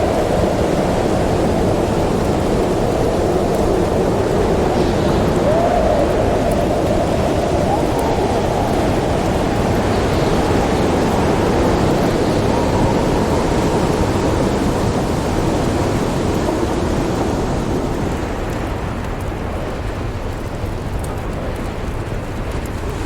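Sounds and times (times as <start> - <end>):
fire crackling: 0.0 - 23.0
howling snowstorm wind: 0.0 - 23.0.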